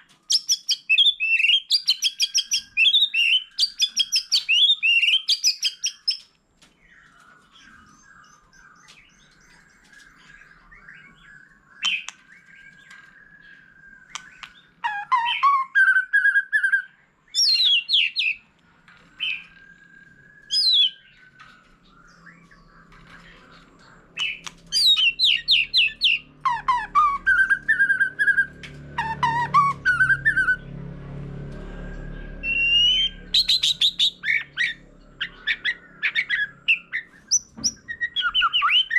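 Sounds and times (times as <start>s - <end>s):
bird singing whistled phrases: 0.3s - 6.2s, 10.0s - 18.4s, 19.2s - 21.4s, 24.2s - 30.6s, 32.4s - 38.9s.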